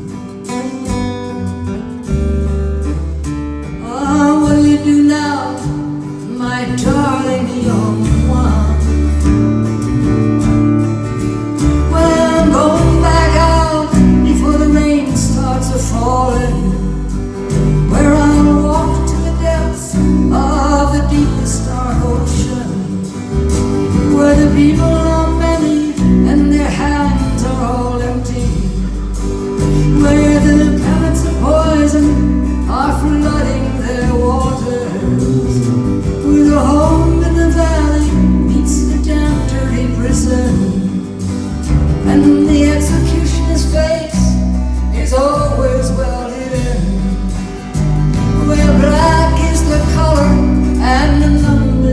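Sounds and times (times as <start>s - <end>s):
acoustic guitar: 0.0s - 51.9s
low bass: 0.0s - 51.9s
person singing: 3.7s - 9.6s, 11.3s - 51.9s.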